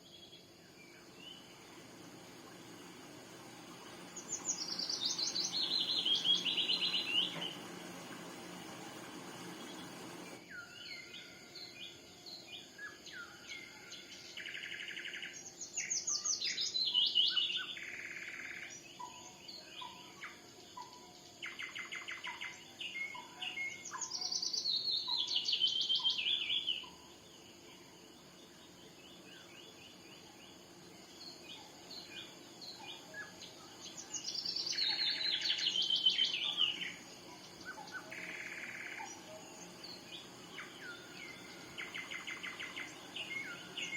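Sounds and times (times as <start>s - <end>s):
birds chirping and buzzing: 0.0s - 43.9s
bird singing tumbling song: 0.9s - 10.7s, 29.0s - 43.9s.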